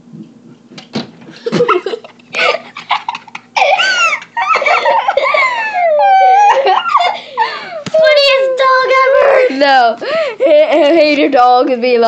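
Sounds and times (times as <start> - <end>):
children laughing and squealing: 1.5 - 9.7.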